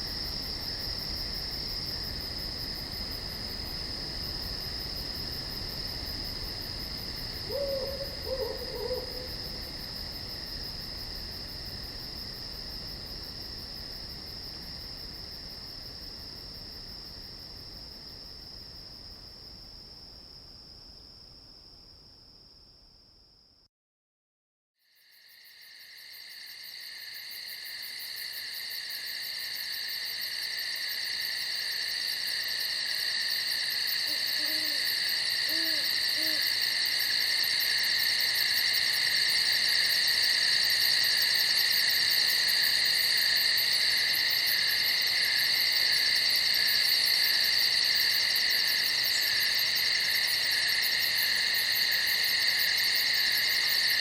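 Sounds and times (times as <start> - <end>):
crickets trilling: 0.0 - 19.0, 25.0 - 54.0
soft low hoots: 7.5 - 9.6, 34.1 - 34.8, 35.4 - 36.6.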